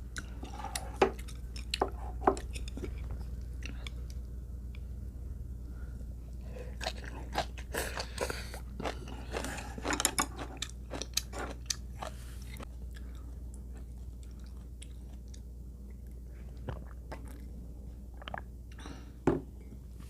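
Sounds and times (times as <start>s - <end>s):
person chewing crunchy food: 0.0s - 4.2s, 6.4s - 17.6s
steady low hum: 0.0s - 20.0s.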